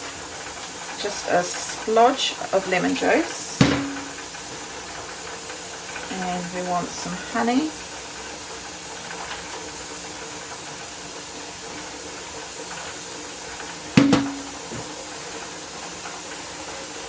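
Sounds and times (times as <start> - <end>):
steady hiss and hum: 0.0 - 16.2
container knocking on bench: 3.6 - 4.2, 14.0 - 14.9.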